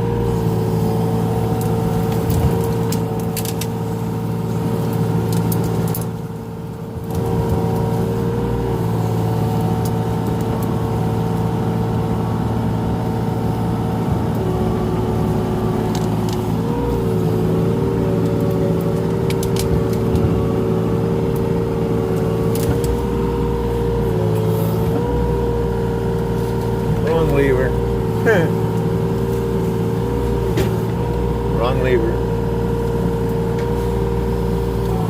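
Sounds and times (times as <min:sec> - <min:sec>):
excavator diesel engine running: 0:00.0 - 0:35.0
hydraulic whine: 0:00.0 - 0:35.0.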